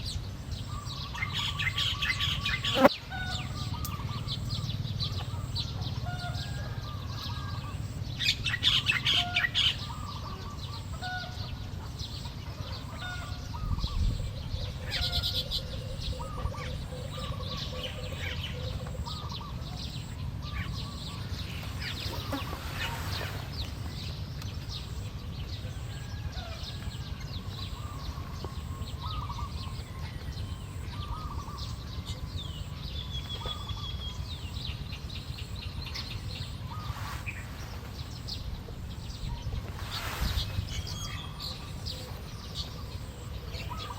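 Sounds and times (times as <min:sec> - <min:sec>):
birds chirping and chattering: 0:00.0 - 0:43.9
buzzy burst of bird chatter: 0:39.8 - 0:41.0.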